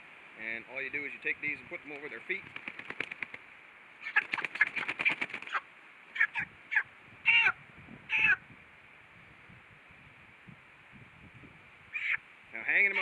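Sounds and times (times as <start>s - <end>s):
chickens squawking: 4.0s - 8.4s, 11.9s - 12.2s.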